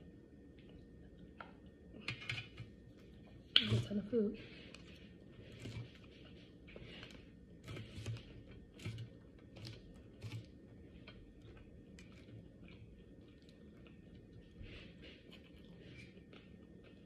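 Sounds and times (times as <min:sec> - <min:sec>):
person chewing: 0:04.8 - 0:17.0.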